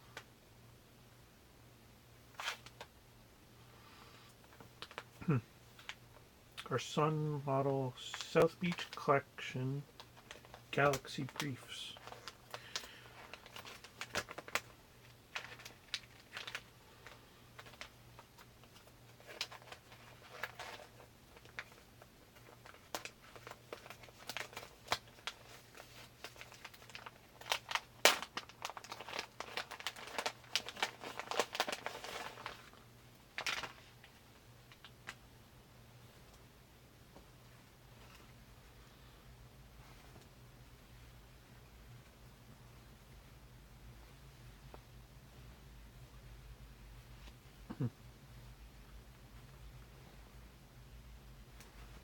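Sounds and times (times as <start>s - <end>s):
packaging crinkling and rustling: 2.3s - 2.9s, 4.4s - 6.0s, 8.0s - 9.1s, 9.9s - 35.2s.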